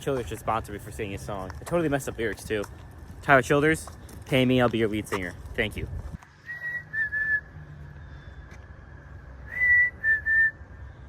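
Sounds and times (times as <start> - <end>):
person whistling bird-like notes: 6.4 - 7.6, 9.4 - 10.6.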